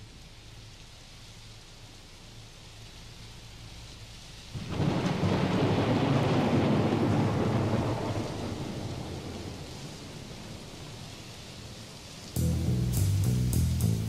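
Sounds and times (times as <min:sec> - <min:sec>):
steady rain hiss: 0:00.0 - 0:14.0
thunder rumbling: 0:04.6 - 0:11.2.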